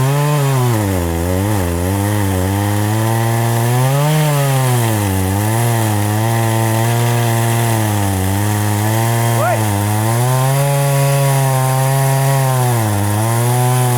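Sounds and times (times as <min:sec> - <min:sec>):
chainsaw cutting tree trunk: 0:00.0 - 0:13.9.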